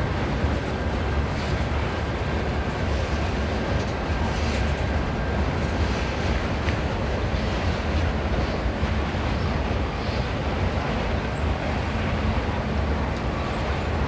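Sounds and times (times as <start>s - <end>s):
freight train rumbling past: 0.0s - 14.0s.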